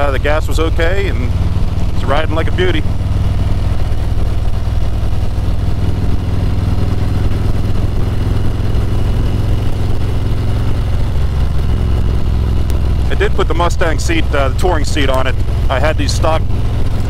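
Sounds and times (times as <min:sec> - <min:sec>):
motorcycle engine low rumble: 0:00.0 - 0:17.0.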